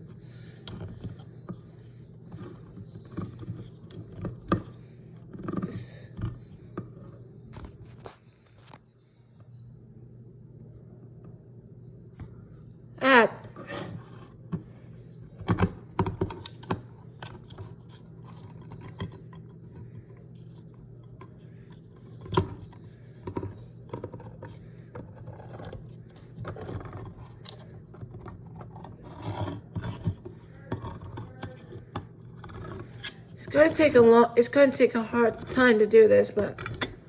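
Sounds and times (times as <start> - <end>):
can opener clicking and scraping: 23.3 - 37.0.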